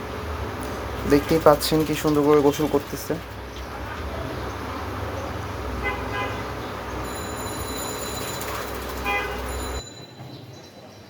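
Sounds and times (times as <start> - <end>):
street traffic rumble: 0.0 - 11.0
car horn double toot: 9.0 - 9.6.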